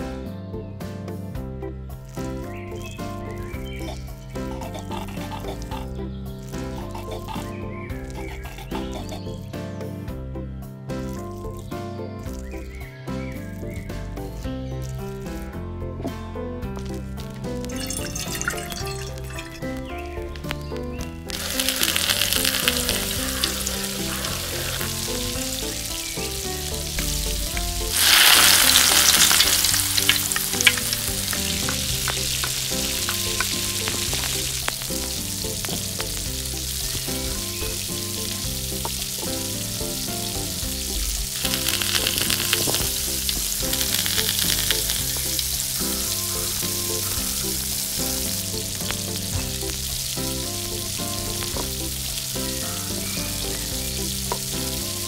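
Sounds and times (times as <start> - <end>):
soft background music: 0.0 - 55.0
stirring clicks: 16.8 - 50.0
food sizzling in hot oil: 16.9 - 55.0.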